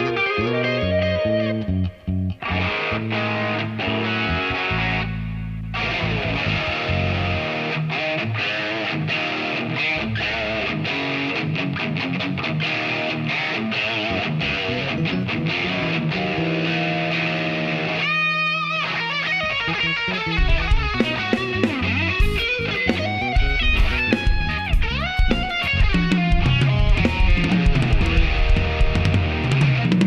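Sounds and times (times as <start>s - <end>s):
electric guitar bent notes: 0.0s - 30.0s
low thumps: 20.4s - 30.0s.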